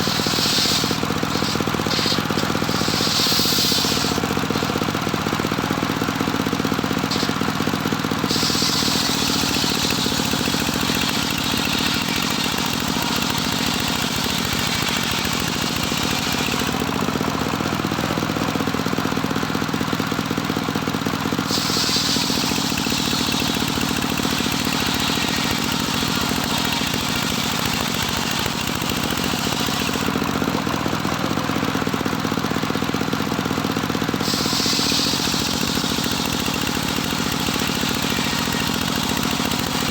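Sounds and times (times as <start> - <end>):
saw blade cutting boards: 0.0 - 4.9, 6.8 - 16.9, 21.4 - 30.1, 34.2 - 39.9
engine droning: 0.0 - 39.9.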